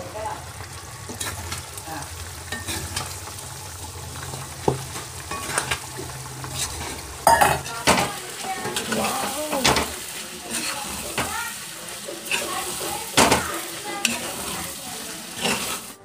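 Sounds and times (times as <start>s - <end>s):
meat sizzling in a pan: 0.0s - 16.0s
metal ladle scraping a pan: 0.9s - 1.8s, 2.4s - 3.4s, 4.2s - 16.0s
ladle clanking against pan: 2.5s - 3.1s, 4.6s - 5.9s, 6.5s - 14.7s.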